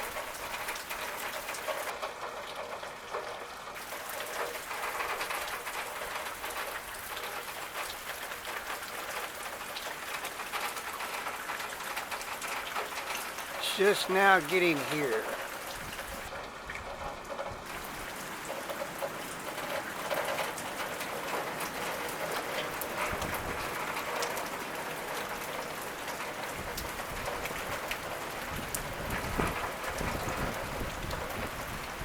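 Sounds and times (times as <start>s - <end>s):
rain hissing and pattering: 0.0s - 32.0s
wind buffeting microphone: 28.5s - 32.0s.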